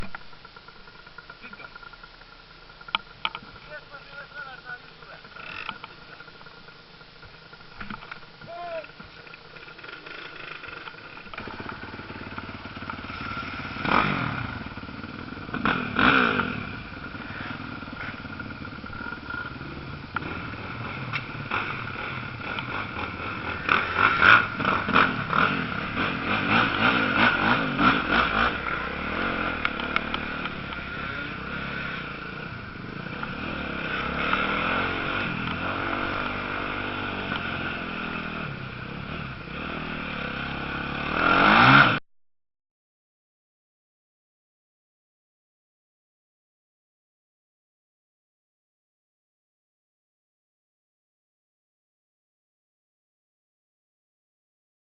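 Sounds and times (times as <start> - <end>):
motocross bikes revving: 0.0 - 42.0.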